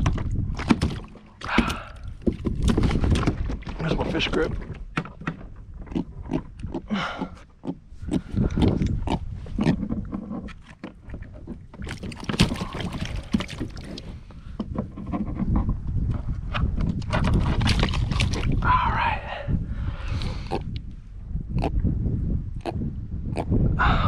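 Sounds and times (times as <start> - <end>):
knocks and clatter on kayak: 0.0 - 6.9, 8.4 - 18.6.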